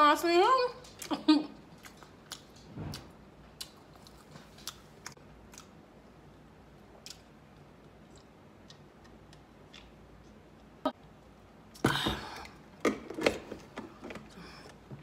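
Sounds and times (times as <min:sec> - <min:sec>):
person chewing food: 0:01.0 - 0:06.1, 0:06.7 - 0:10.8.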